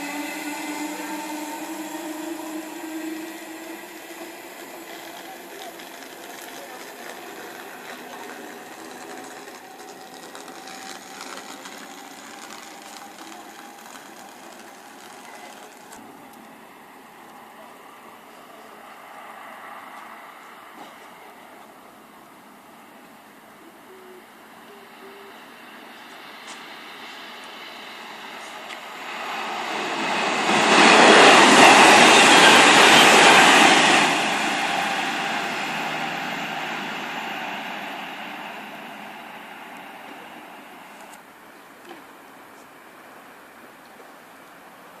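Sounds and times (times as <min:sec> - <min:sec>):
train wheels on rails: 0:00.0 - 0:16.6, 0:23.9 - 0:42.8.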